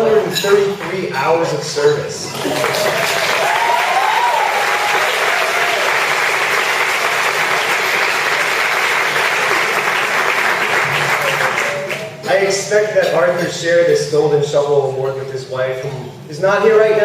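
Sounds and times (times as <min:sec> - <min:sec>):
audience applauding: 0:02.3 - 0:12.2.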